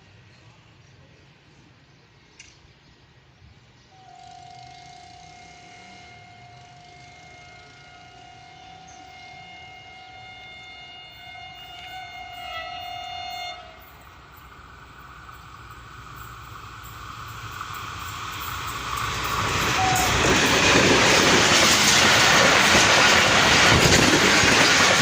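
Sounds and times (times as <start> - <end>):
train rumbling: 3.5 - 25.0
train horn blast: 3.9 - 14.1, 19.7 - 20.6.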